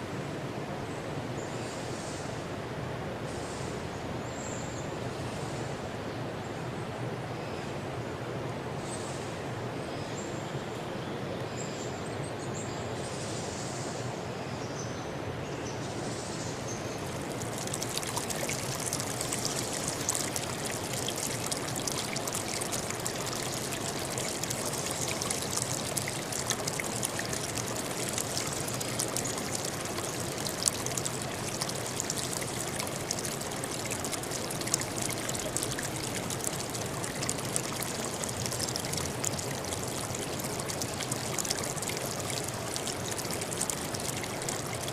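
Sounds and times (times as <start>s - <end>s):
stream water rushing: 16.9s - 44.9s.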